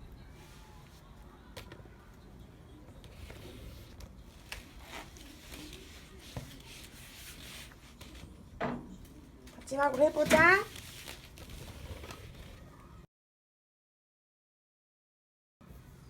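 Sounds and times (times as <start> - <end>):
faint rubbing and scraping: 3.0 - 8.4, 9.0 - 12.8.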